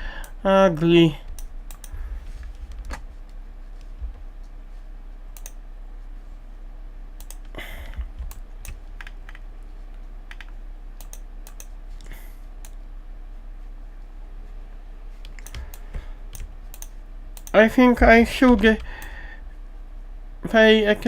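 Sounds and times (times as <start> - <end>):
low steady hum: 0.0 - 21.0
keyboard keystrokes and clicks: 1.2 - 3.1, 5.4 - 5.6, 7.2 - 9.4, 10.3 - 11.8, 15.2 - 19.1.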